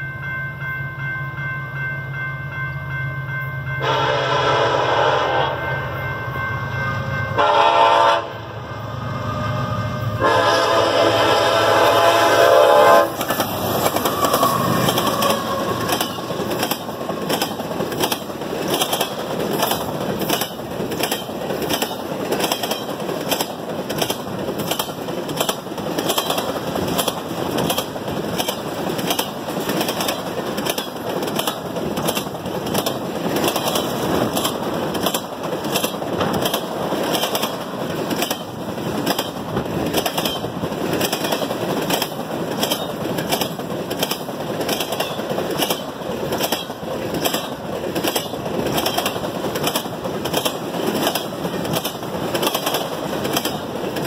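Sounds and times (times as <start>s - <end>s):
freight train wheels rumbling: 2.9s - 54.0s
regular clacking of wheels: 13.1s - 54.0s.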